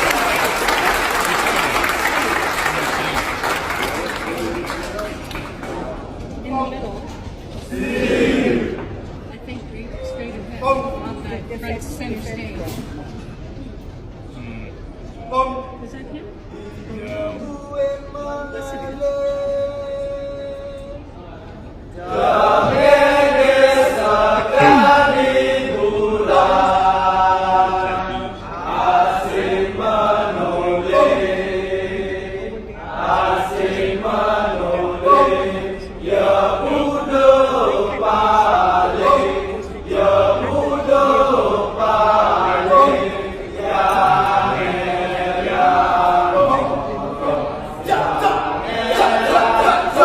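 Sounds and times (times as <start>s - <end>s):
group of voices chanting: 24.4s - 26.0s.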